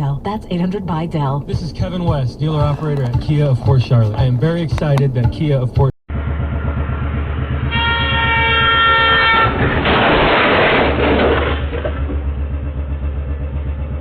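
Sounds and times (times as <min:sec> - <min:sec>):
horn blast: 0:00.0 - 0:10.8
heavy engine rumble: 0:00.0 - 0:14.0.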